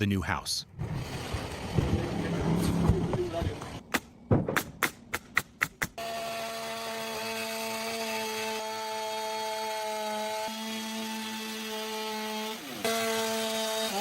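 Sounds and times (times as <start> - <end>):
sharp knocks: 2.9 - 6.0
power tool motor running: 6.0 - 14.0.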